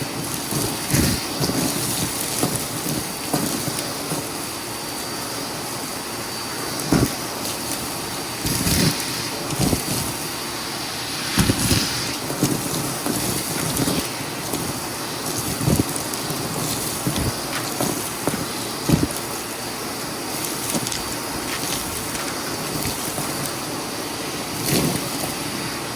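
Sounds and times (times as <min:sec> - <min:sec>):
vacuum cleaner running: 0:00.0 - 0:25.9.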